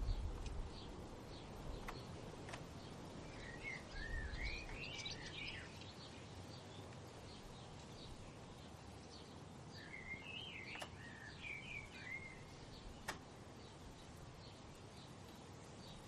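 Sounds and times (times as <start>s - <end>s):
low background hiss: 0.0s - 16.0s
songbird warbling: 2.8s - 6.4s, 9.8s - 14.0s
faint high bird chirps: 3.2s - 16.0s
sharp clicks: 10.7s - 11.0s, 13.0s - 13.3s.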